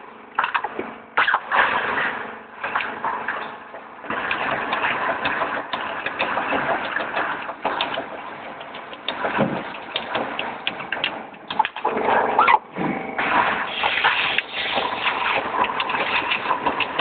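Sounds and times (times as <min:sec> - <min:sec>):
machine clattering: 0:00.4 - 0:12.5, 0:13.2 - 0:17.0
sharp clicks and knocks: 0:02.7 - 0:11.9.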